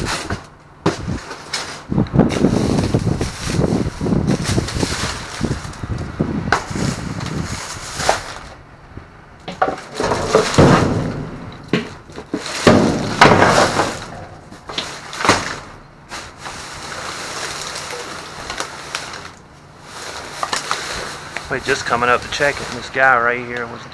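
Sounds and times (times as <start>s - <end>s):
plastic bags rustling: 0.0s - 8.7s, 9.5s - 23.5s
knocks in a dumpster: 9.5s - 14.5s.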